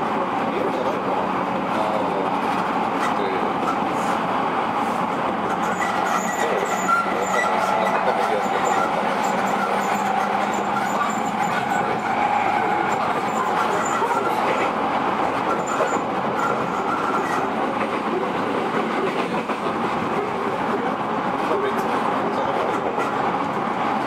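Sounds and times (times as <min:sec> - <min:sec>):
electric train rolling noise: 0:00.0 - 0:24.0.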